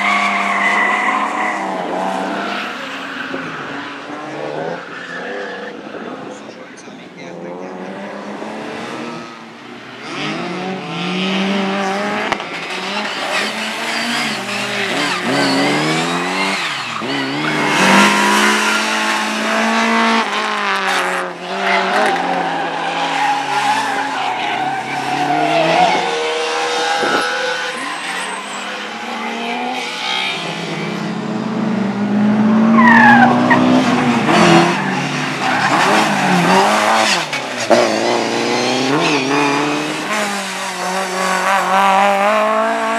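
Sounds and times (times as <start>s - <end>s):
rally car engines revving: 0.0s - 42.9s
tyre squeal: 13.0s - 19.3s, 21.6s - 30.7s.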